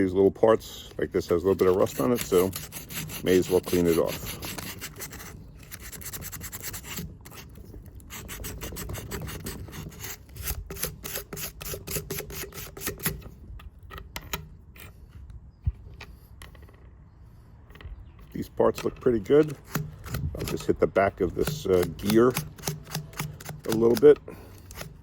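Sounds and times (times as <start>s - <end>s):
scrubbing rust off steel: 0.0s - 15.2s, 15.9s - 25.0s.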